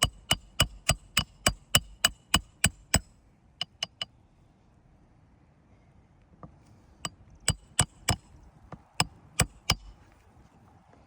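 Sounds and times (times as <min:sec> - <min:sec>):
hammer driving roofing nails: 0:00.0 - 0:04.0, 0:07.5 - 0:08.3, 0:09.0 - 0:10.0
light hammer taps: 0:00.0 - 0:04.1.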